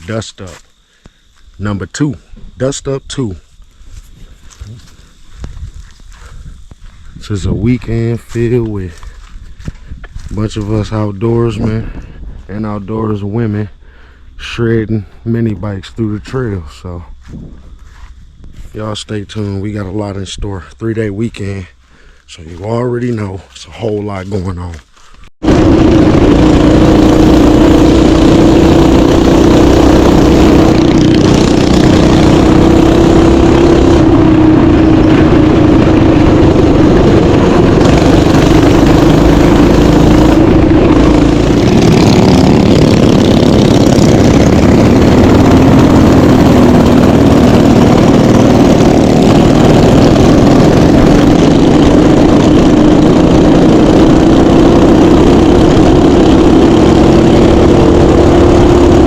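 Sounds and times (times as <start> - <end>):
mini bike engine running: 25.4 - 59.0.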